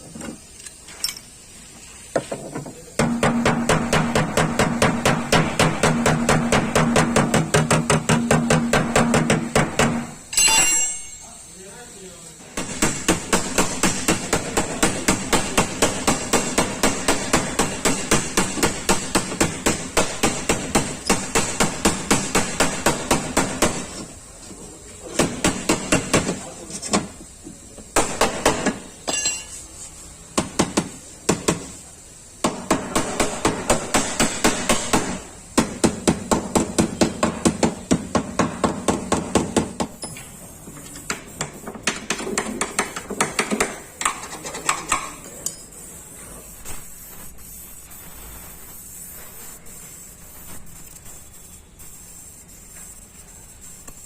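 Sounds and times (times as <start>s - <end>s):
hammer tapping sheet metal: 3.0s - 11.2s, 12.6s - 24.0s, 32.4s - 40.0s, 41.0s - 45.6s.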